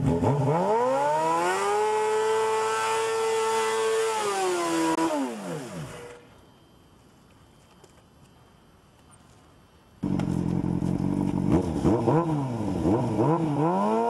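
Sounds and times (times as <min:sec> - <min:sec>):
motorcycle engine revving hard: 0:00.0 - 0:06.2, 0:10.0 - 0:14.0.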